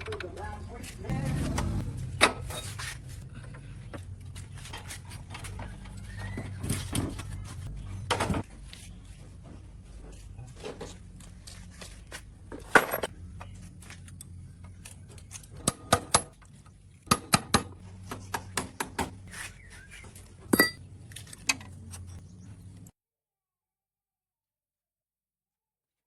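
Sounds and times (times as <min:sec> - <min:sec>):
metallic clinks and knocks: 0:20.5 - 0:20.8.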